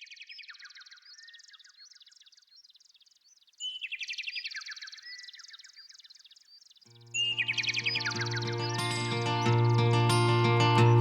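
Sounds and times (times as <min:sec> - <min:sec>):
songbird trilled chirps: 0:07.2 - 0:11.0.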